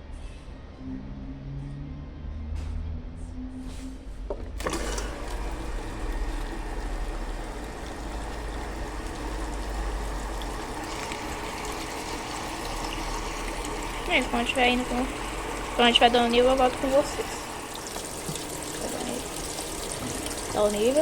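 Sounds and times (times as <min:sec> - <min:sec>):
water rushing into washing machine: 0:04.6 - 0:21.0.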